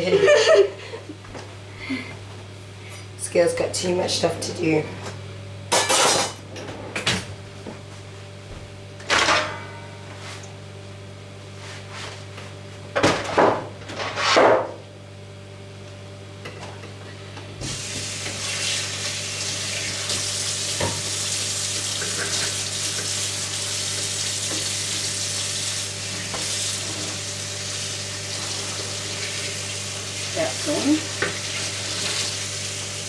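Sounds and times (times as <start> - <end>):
steady low hum: 0.0 - 12.9
tap water running into sink: 17.6 - 33.0.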